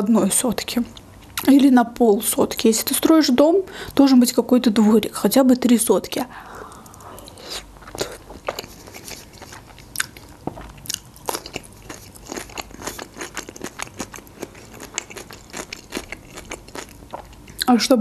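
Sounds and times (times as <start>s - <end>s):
chewing soft food: 6.6s - 17.7s.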